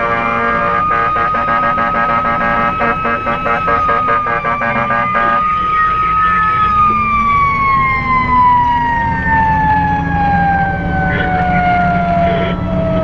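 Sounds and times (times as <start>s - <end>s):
fire engine siren wailing: 0.0s - 13.0s
truck engine rumble: 0.0s - 13.0s.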